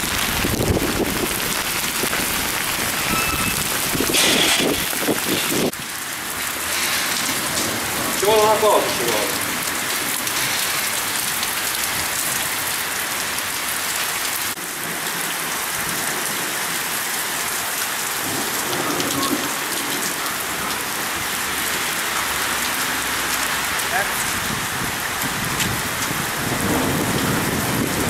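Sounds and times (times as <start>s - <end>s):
heavy rain pouring: 0.0s - 28.0s
low thunder rumble: 24.3s - 28.0s.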